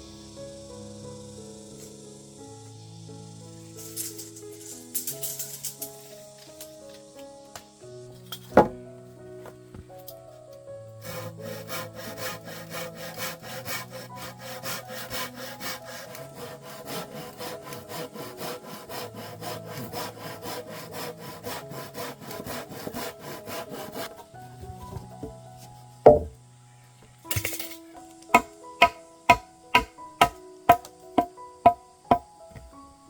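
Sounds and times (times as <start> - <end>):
soft background music: 0.0 - 33.0
hand saw cutting wood: 11.0 - 25.4, 28.3 - 32.2.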